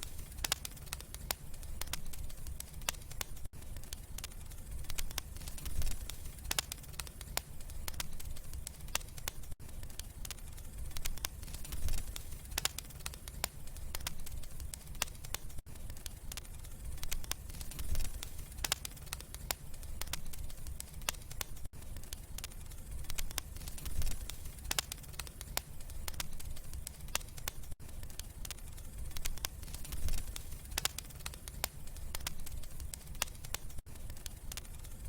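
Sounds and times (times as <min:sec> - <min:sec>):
wood fire crackling and popping: 0:00.0 - 0:35.0.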